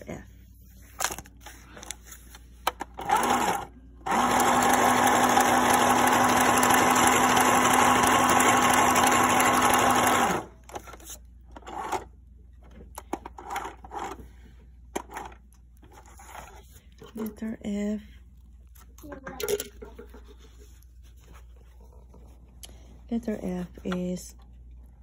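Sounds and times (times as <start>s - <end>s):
sewing machine stitching: 2.9s - 10.6s.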